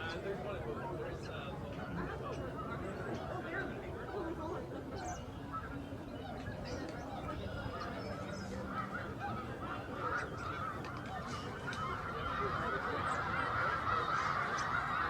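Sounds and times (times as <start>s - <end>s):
flock of geese honking: 4.9s - 15.0s.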